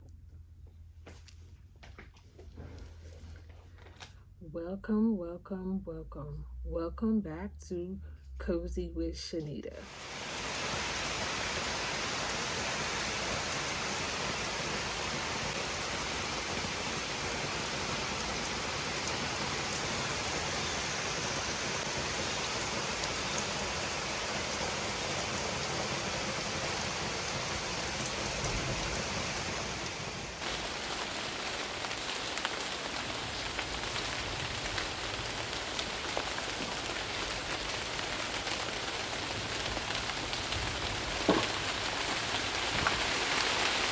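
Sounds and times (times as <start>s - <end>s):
rain falling: 9.8s - 43.9s
raindrops striking a surface: 9.8s - 43.9s.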